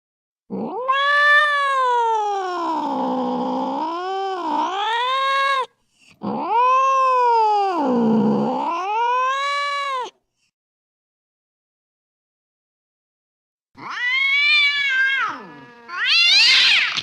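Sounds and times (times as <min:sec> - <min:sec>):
cat yowling: 0:00.5 - 0:10.2, 0:13.8 - 0:17.0.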